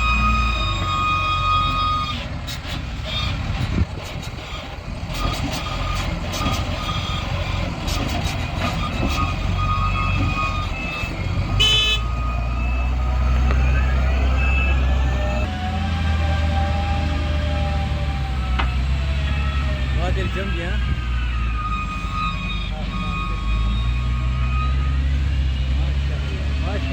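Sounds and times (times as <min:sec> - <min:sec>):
reversing alarm beeping: 0:00.0 - 0:02.3, 0:08.7 - 0:26.9
diesel engine running heavily: 0:00.0 - 0:26.9
horn toot: 0:09.0 - 0:15.4.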